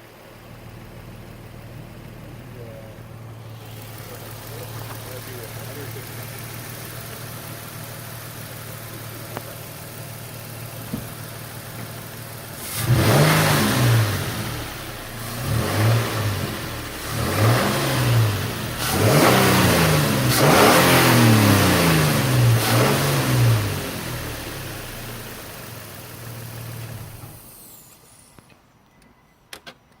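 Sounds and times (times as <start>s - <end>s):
car engine idling and revving: 0.0s - 28.4s.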